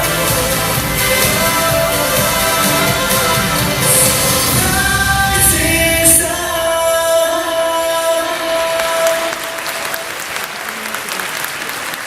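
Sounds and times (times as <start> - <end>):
crowd applauding: 0.0 - 4.8, 8.2 - 12.0.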